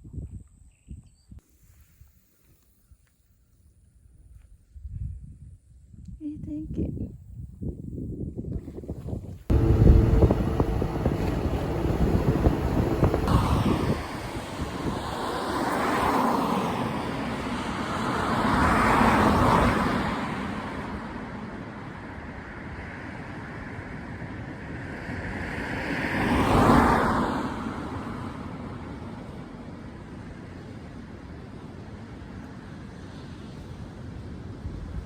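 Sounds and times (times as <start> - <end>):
vehicles passing: 9.5 - 33.5
low traffic rumble: 9.5 - 35.0.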